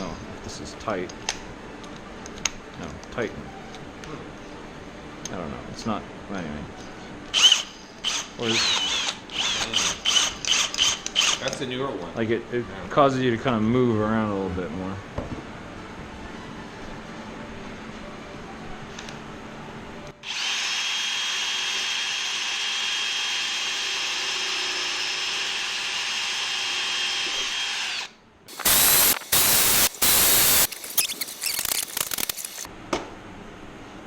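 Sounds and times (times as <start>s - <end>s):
cordless drill whining: 7.4s - 11.4s, 20.2s - 32.7s.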